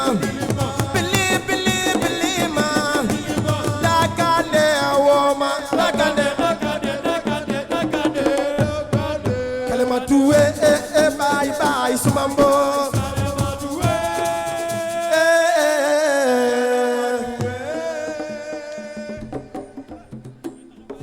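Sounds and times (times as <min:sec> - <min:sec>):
person singing: 0:00.0 - 0:20.1
fast hand drum percussion: 0:00.0 - 0:21.0.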